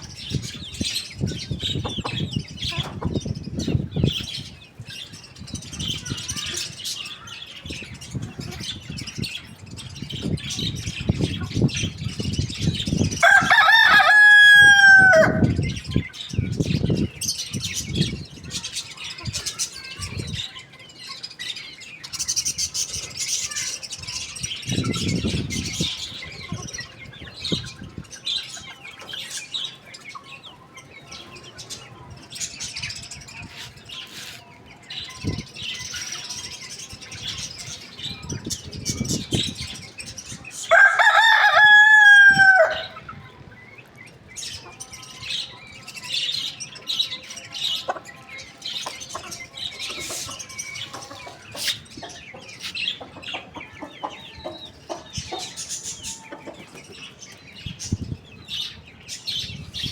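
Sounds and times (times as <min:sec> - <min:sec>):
small birds chirping: 0:00.0 - 0:59.9
hens clucking: 0:01.7 - 0:03.3, 0:47.7 - 0:57.2
rooster crowing: 0:13.2 - 0:15.6, 0:40.7 - 0:43.0.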